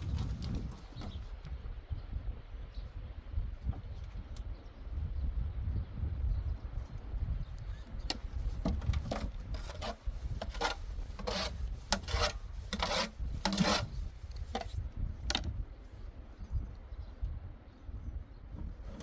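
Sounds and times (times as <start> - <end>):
rasping scraping strokes: 8.1 - 14.8.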